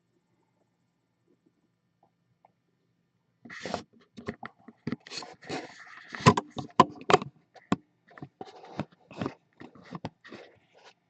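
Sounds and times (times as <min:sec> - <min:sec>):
objects scraping: 0:04.9 - 0:06.8.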